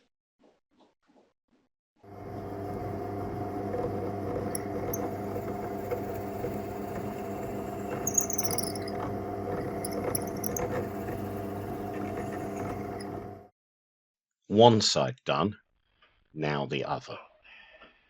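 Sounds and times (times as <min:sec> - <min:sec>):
steady mechanical hum: 0:02.1 - 0:13.5.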